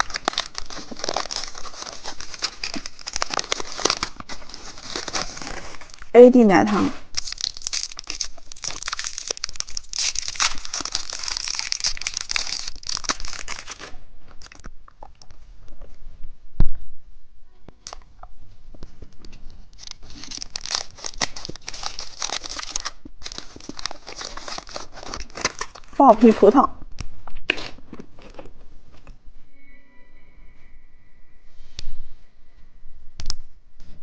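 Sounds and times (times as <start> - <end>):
candy wrappers crinkling: 0.0 - 6.1, 7.0 - 15.2, 19.7 - 26.6, 27.3 - 28.6.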